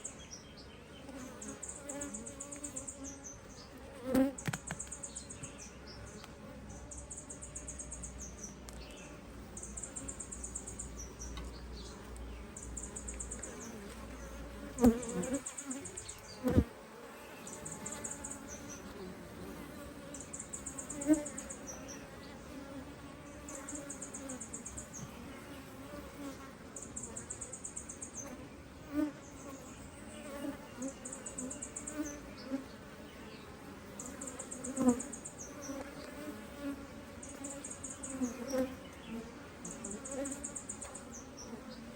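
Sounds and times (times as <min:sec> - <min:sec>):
honeybees buzzing: 0:00.0 - 0:41.9
knocks of hive being handled: 0:04.0 - 0:05.6, 0:13.1 - 0:16.8.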